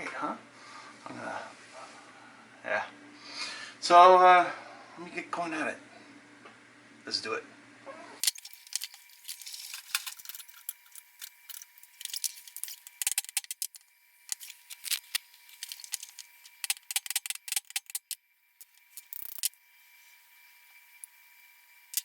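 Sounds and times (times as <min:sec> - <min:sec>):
metal parts clicking and rattling: 0:08.2 - 0:19.6.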